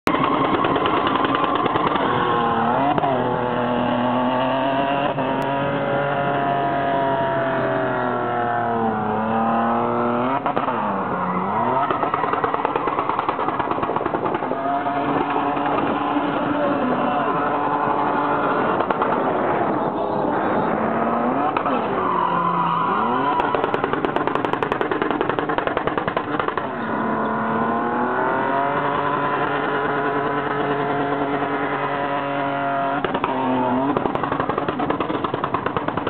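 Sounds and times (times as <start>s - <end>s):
car engine revving hard: 0.7s - 12.0s, 20.4s - 25.0s, 26.5s - 34.1s.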